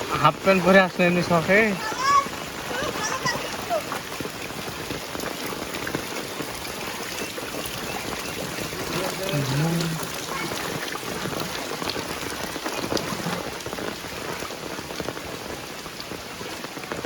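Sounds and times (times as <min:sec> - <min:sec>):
heavy rain falling: 0:00.0 - 0:17.0
raindrops pattering: 0:00.0 - 0:17.0
low voice-like call: 0:08.8 - 0:10.8.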